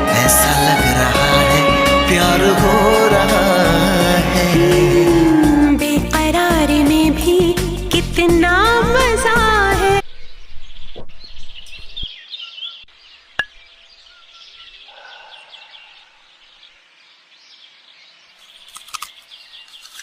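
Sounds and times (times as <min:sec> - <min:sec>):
song music: 0:00.0 - 0:10.0
birds chirping and singing: 0:10.0 - 0:20.0.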